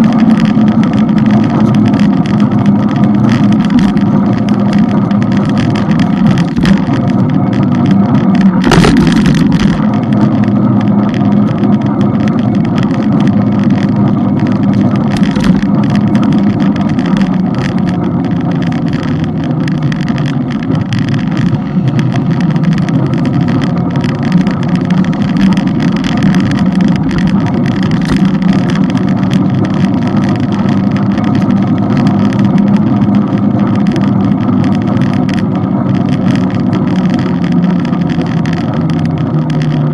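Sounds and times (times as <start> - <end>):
loud burst of noise: 0.0 - 35.3
motorbike engine cruising: 0.0 - 39.9
wind and road noise: 0.0 - 39.9.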